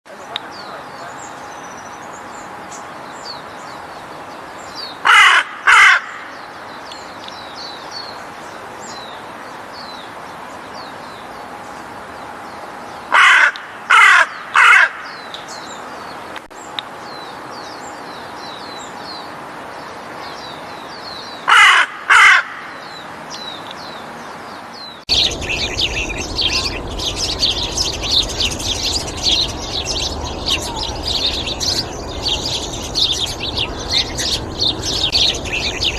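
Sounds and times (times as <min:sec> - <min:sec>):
dense chorus of bird chirps: 0:00.1 - 0:35.9
crow-like caws: 0:05.0 - 0:06.4, 0:13.1 - 0:15.3, 0:21.4 - 0:22.9
small birds chirping: 0:22.7 - 0:35.9.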